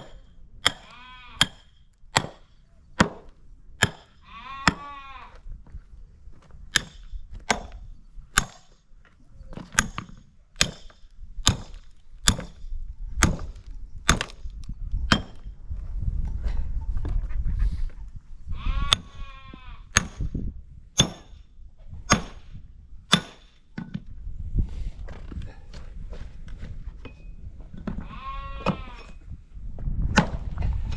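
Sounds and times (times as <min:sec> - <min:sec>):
axe chopping firewood: 0:00.0 - 0:04.9, 0:06.7 - 0:08.8, 0:09.6 - 0:15.4, 0:19.9 - 0:20.4, 0:21.0 - 0:21.4, 0:22.1 - 0:23.6, 0:30.1 - 0:30.4
sheep bleating: 0:00.8 - 0:01.4, 0:04.2 - 0:05.4, 0:18.6 - 0:19.9, 0:28.0 - 0:29.0.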